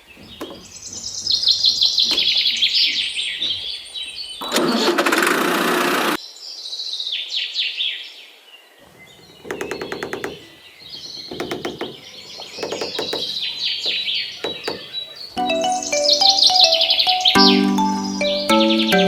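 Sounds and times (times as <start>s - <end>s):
small birds chirping: 0.0s - 4.9s, 8.8s - 19.0s.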